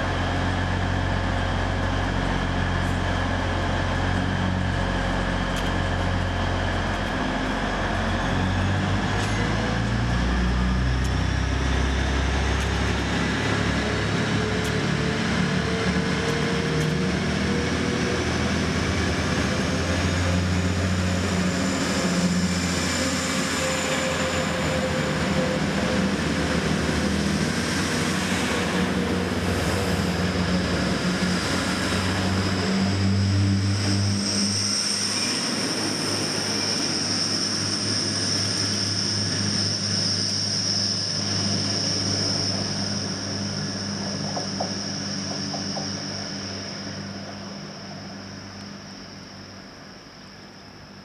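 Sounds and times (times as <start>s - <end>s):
diesel train engines humming: 0.0s - 51.0s
high whine: 18.3s - 50.8s.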